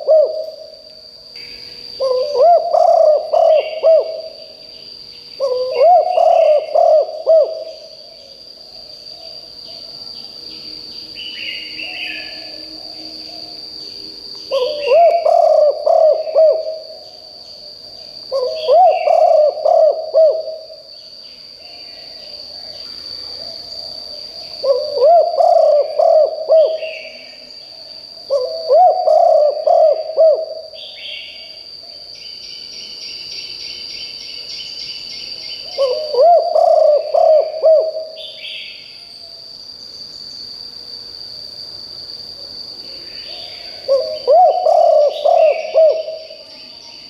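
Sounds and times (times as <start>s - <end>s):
dove cooing: 0.0s - 0.8s, 2.0s - 4.5s, 5.4s - 7.9s, 14.5s - 17.1s, 18.3s - 20.8s, 24.6s - 27.3s, 28.3s - 31.2s, 35.7s - 38.4s, 43.3s - 46.5s
high insect whine: 0.0s - 47.0s.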